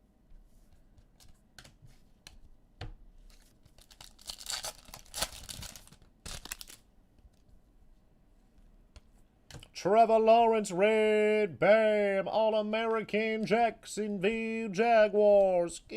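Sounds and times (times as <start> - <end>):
cards rustling and clicking: 3.2 - 7.5
card pack wrapper tearing: 3.3 - 6.8.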